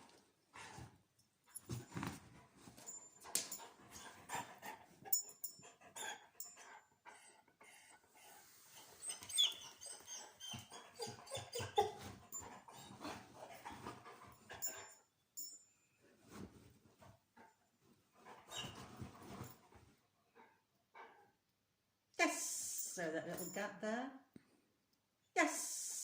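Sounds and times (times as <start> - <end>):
dog whining and panting: 2.8 - 15.0, 18.2 - 21.4.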